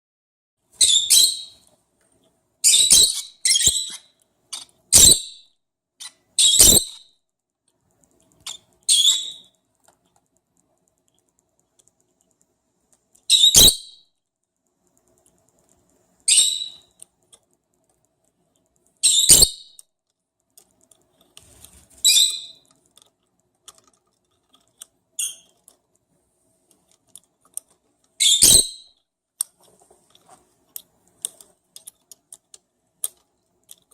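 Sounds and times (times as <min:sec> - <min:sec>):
lovebirds chirping: 0:00.8 - 0:01.6, 0:06.0 - 0:07.0, 0:08.5 - 0:09.5, 0:13.3 - 0:14.0, 0:16.2 - 0:17.0, 0:22.0 - 0:22.7, 0:28.2 - 0:29.0.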